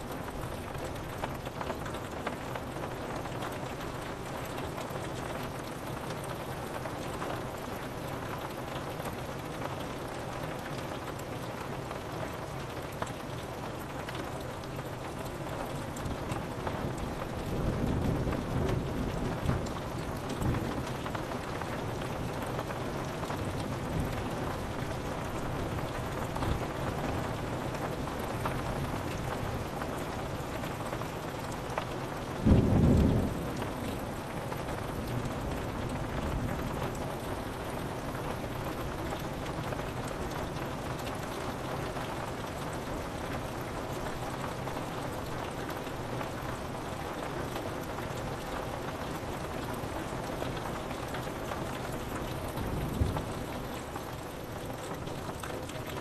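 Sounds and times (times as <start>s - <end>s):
rain on window glass: 0.0s - 56.0s
thunderclap: 32.4s - 36.7s, 52.5s - 53.6s.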